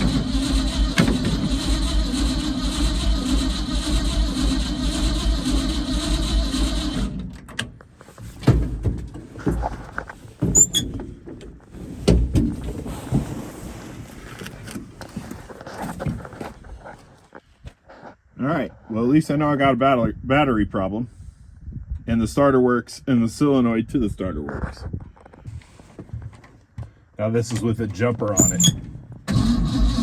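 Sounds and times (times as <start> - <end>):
starter motor cranking engine: 0.0 - 7.4, 28.4 - 30.0.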